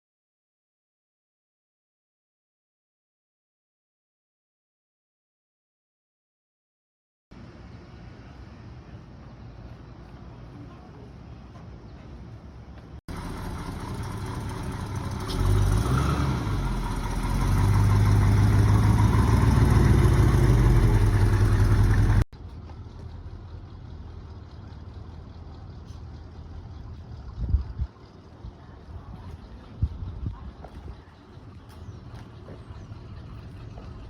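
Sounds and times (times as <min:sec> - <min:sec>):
car engine revving: 0:13.1 - 0:22.2.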